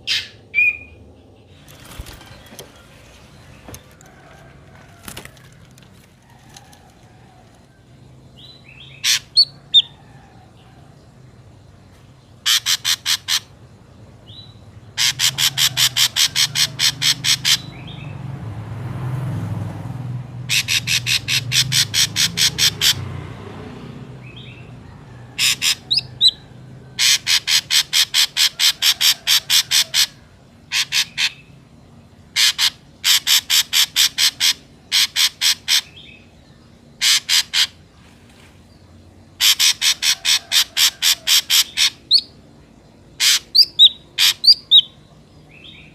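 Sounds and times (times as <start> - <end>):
bird calling harsh notes: 0.0 - 1.0, 8.8 - 9.9, 12.4 - 13.6, 15.0 - 17.9, 20.5 - 23.0, 25.4 - 26.4, 27.0 - 31.5, 32.3 - 36.3, 37.0 - 37.9, 39.4 - 42.4, 43.2 - 45.0.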